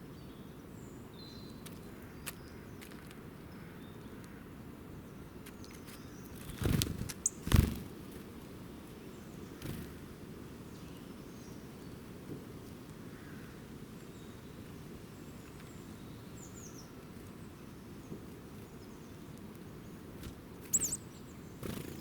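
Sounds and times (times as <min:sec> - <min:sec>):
short high bird chirp: 0:20.7 - 0:21.0.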